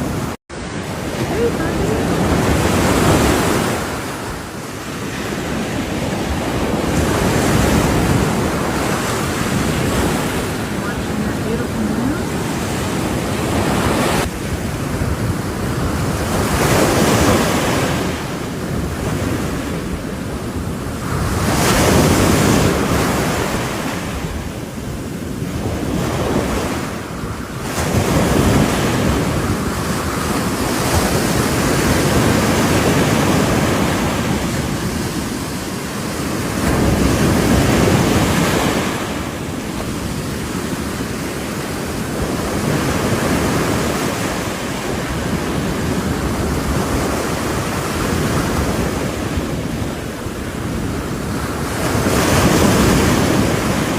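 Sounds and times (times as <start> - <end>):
ocean waves breaking: 0.0 - 53.9
wind buffeting microphone: 0.0 - 53.9.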